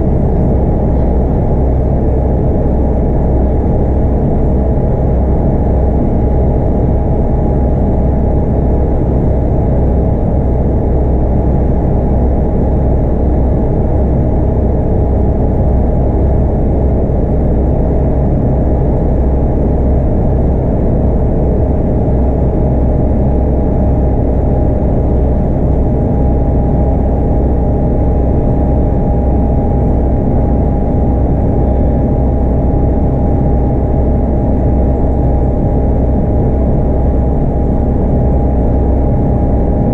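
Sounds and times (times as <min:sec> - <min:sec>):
diesel bus engine droning: 0:15.6 - 0:39.9.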